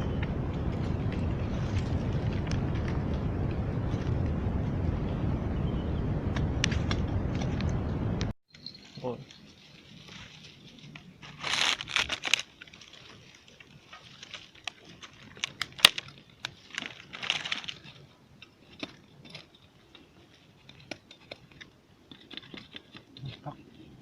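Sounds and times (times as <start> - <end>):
dry vegetation rustling: 0.0 - 24.0
twigs snapping: 10.0 - 23.5.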